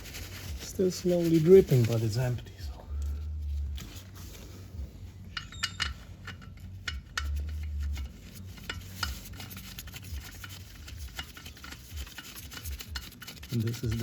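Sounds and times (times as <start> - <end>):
metal clinks of hand tools: 5.3 - 7.4.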